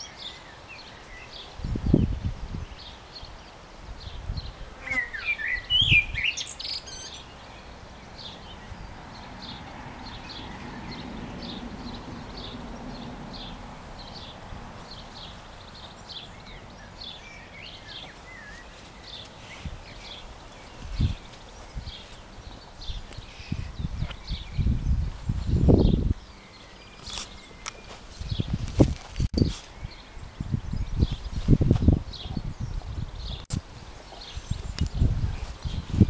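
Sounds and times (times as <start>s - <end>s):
bird singing loud phrase: 0.0s - 28.6s.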